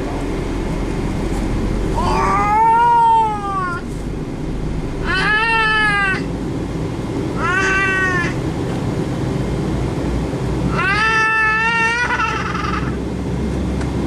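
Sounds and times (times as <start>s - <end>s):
airliner cabin rumble: 0.0s - 14.0s
cat meowing: 2.0s - 3.9s, 5.0s - 6.3s, 7.4s - 8.4s, 10.7s - 12.1s.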